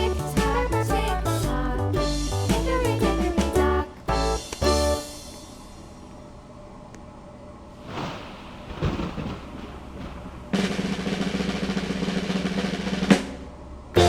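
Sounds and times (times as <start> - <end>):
drum roll: 0.0 - 6.0, 7.9 - 14.0
cymbal crash: 4.2 - 6.0.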